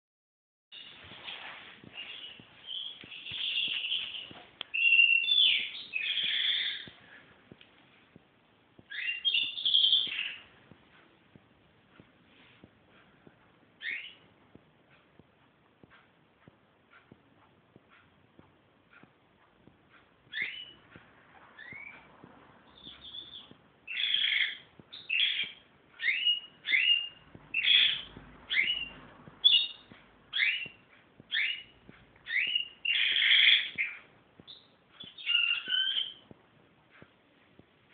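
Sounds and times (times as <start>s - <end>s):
bird chirping whistles: 2.0s - 7.0s, 8.9s - 10.4s, 13.8s - 14.2s, 20.3s - 20.8s, 21.6s - 22.0s, 22.7s - 36.2s.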